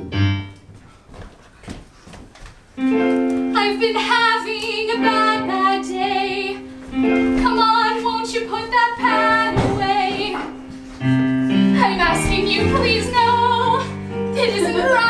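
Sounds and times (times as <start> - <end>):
woman singing: 3.5 - 10.7, 11.6 - 15.0.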